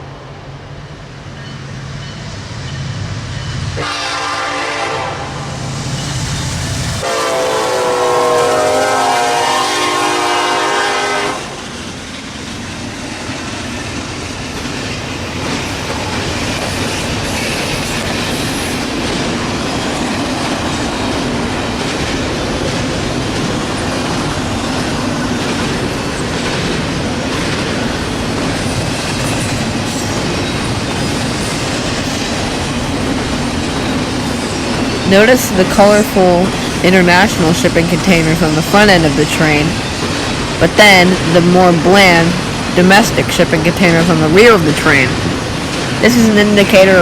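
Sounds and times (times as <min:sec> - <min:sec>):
train cars rolling on rails: 0:00.0 - 0:47.0
locomotive air horn: 0:03.8 - 0:05.6, 0:07.0 - 0:11.6.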